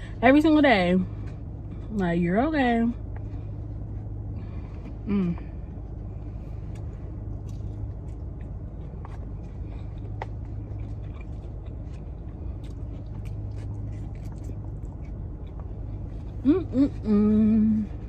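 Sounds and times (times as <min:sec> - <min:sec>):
car cabin hum: 0:00.0 - 0:18.0
person chewing food: 0:03.0 - 0:17.1.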